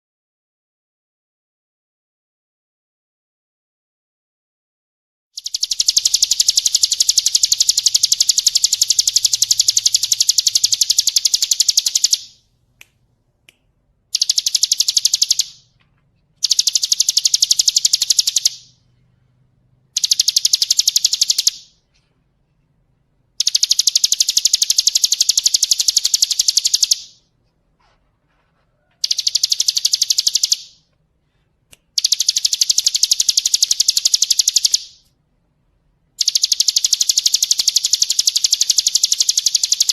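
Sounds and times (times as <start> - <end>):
songbird rattling trill: 5.4 - 12.4, 14.1 - 15.6, 16.4 - 18.8, 20.0 - 21.8, 23.4 - 27.2, 29.0 - 30.8, 32.0 - 35.0, 36.2 - 39.9.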